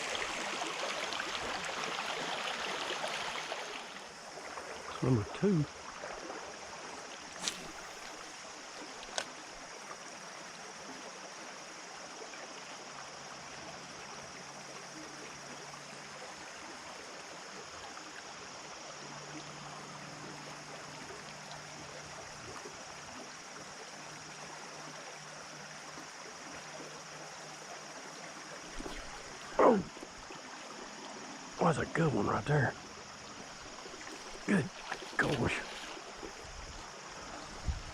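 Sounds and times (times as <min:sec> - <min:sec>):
water running over rocks: 0:00.0 - 0:10.9, 0:20.4 - 0:37.9
sharp click: 0:07.4 - 0:07.9.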